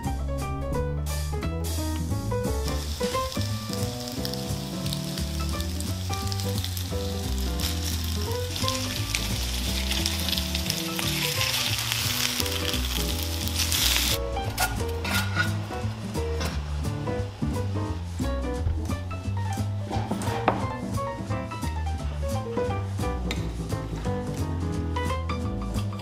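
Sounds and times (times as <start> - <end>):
background music: 0.0 - 26.0
patties sizzling in a pan: 1.6 - 18.3.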